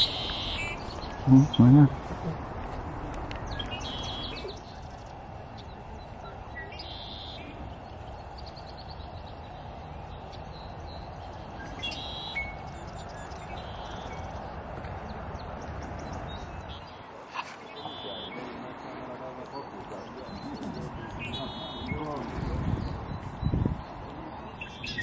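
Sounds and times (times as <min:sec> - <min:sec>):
songbirds chirping: 0:00.0 - 0:25.0
buzzy bird trills: 0:10.9 - 0:14.2.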